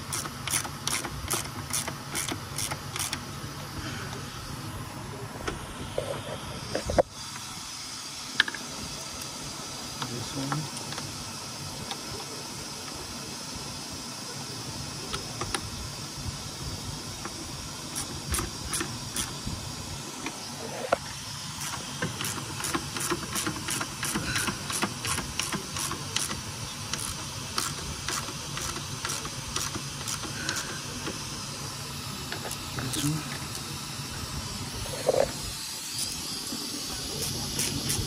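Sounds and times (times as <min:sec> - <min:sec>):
wrench ratcheting clicks: 0:00.0 - 0:03.2, 0:21.6 - 0:31.2
steady hiss: 0:00.0 - 0:38.0.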